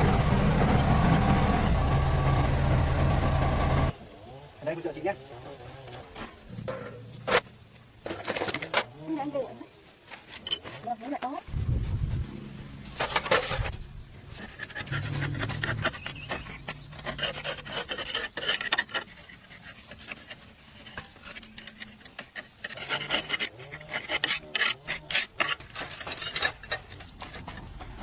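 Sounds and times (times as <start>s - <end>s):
hand tool scraping hard surface: 12.9s - 28.0s.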